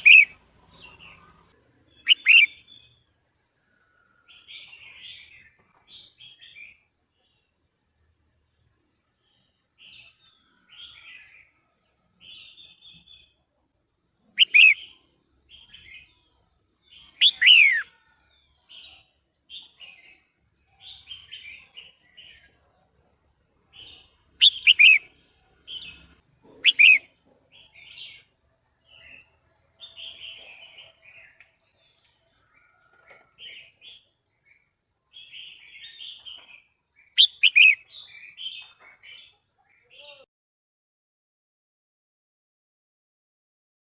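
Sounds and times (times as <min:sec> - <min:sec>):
soft bird chattering: 0:00.0 - 0:00.4, 0:02.0 - 0:02.6, 0:14.4 - 0:14.9, 0:24.4 - 0:25.1, 0:26.5 - 0:27.1, 0:37.2 - 0:37.8.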